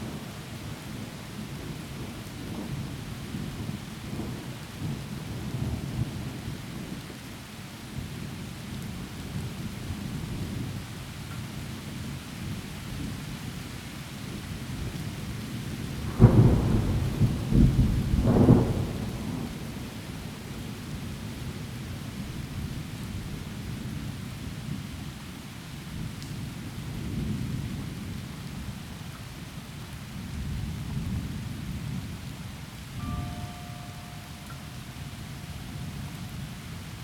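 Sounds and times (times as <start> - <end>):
heavy rain through trees: 0.0 - 37.0
thunder rumbling: 15.9 - 21.4.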